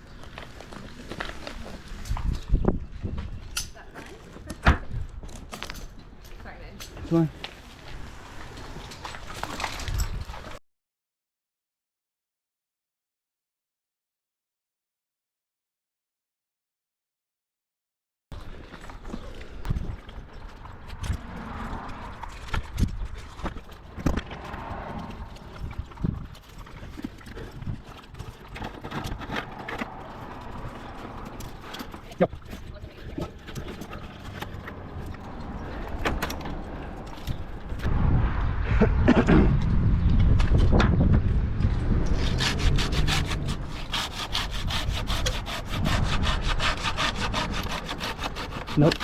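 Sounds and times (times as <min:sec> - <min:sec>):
hand saw cutting tree limb: 0:42.1 - 0:49.0.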